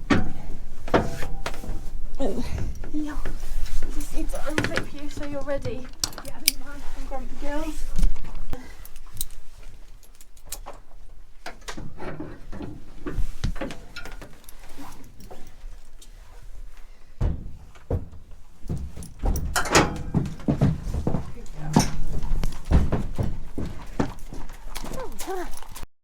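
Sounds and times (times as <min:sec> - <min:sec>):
trailer fittings knocking: 0:00.0 - 0:03.0, 0:17.1 - 0:24.5
hooves on trailer floor: 0:00.0 - 0:25.8.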